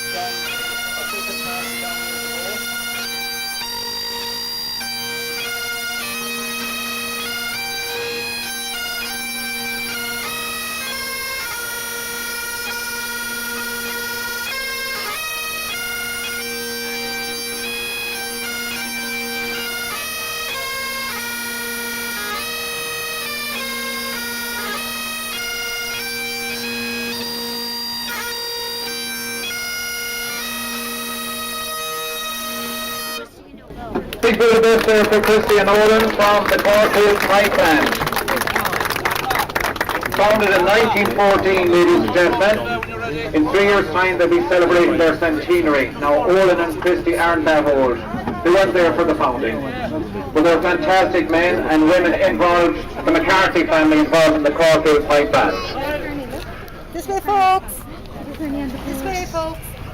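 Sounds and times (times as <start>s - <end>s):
bagpipes playing a tune: 0.0s - 59.9s.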